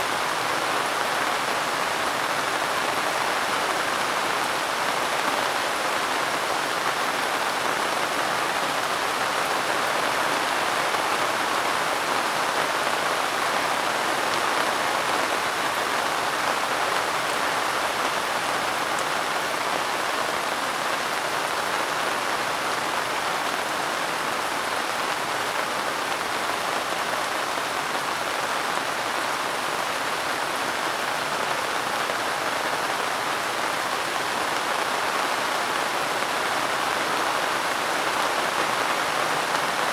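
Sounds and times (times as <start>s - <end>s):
soft steady rain: 0.0s - 39.9s.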